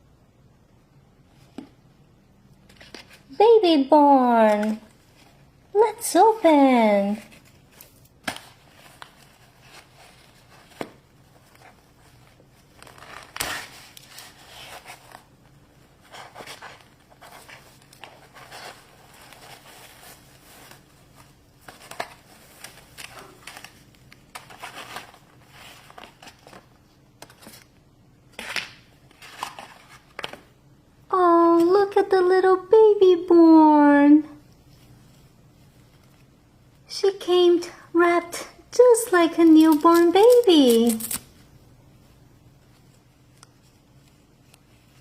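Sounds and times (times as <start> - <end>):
plastic wrappers crinkling and tearing: 7.2 - 27.8, 39.4 - 41.4.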